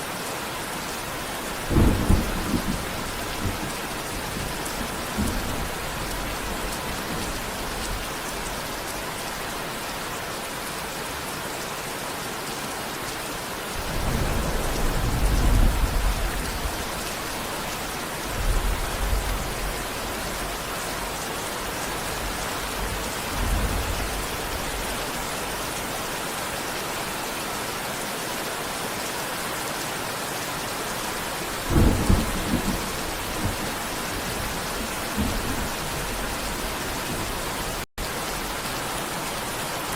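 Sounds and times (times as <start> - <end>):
steady rain falling: 0.0 - 39.9
thunder rumbling: 1.3 - 8.2, 13.8 - 20.4, 31.5 - 37.9.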